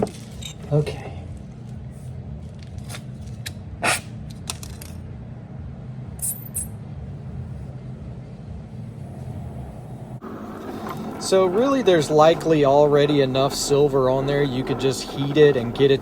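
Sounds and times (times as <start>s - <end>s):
metallic clicks and scrapes of tools: 0.0s - 0.7s, 6.2s - 6.7s
steady low hum: 0.0s - 16.0s.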